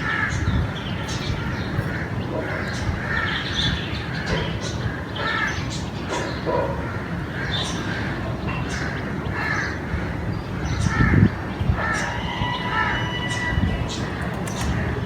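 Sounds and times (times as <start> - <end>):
crows cawing: 8.8 - 14.0.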